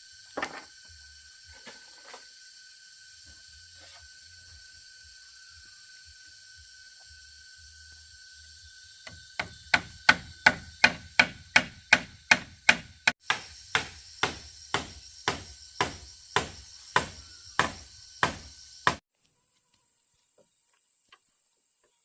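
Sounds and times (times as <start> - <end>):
hand tool striking wood: 9.1 - 19.0.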